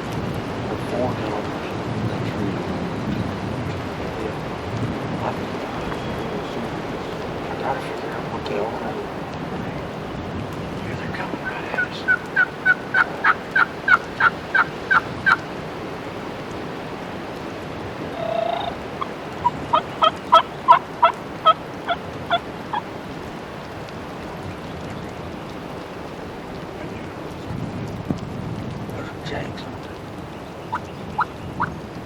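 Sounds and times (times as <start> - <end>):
wild turkey yelping: 11.2 - 15.5, 18.0 - 22.9, 30.7 - 31.3.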